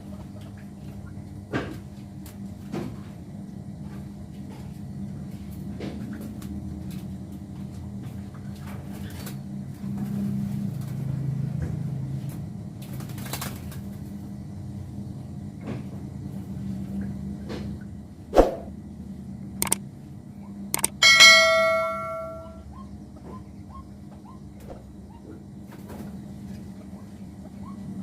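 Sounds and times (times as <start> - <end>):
low steady hum: 17.8 - 23.0
clicks: 20.8 - 22.6
metallic clang ringing: 20.8 - 22.6.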